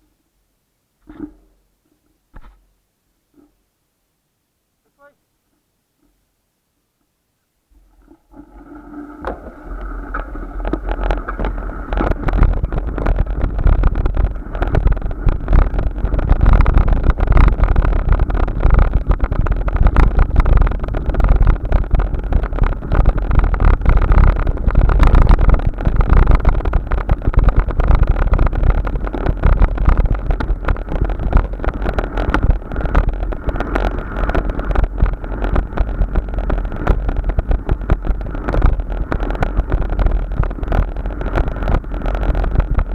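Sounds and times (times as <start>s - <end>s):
steady hum: 7.3s - 42.9s
wind buffeting microphone: 9.1s - 42.9s.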